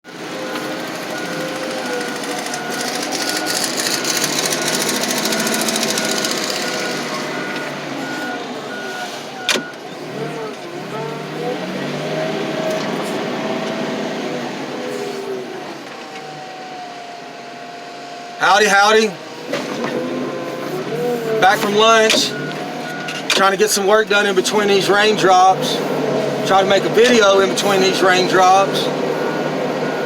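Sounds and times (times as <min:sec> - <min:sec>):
heavy machine engine running: 0:00.1 - 0:30.0
backup alarm beeping: 0:01.0 - 0:10.2, 0:21.4 - 0:25.0, 0:26.5 - 0:30.0.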